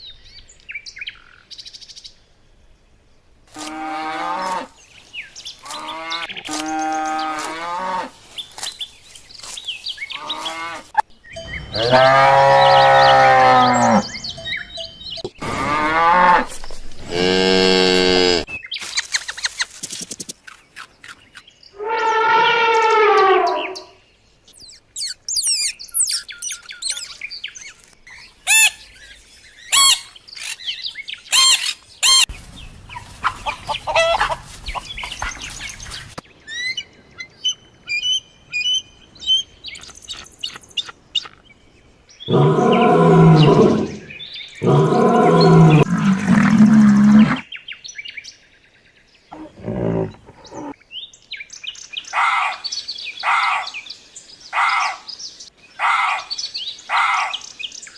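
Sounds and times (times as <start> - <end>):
bird chirps and whistles: 24.6 - 27.2
loud low animal calls: 42.3 - 47.4, 49.3 - 50.8.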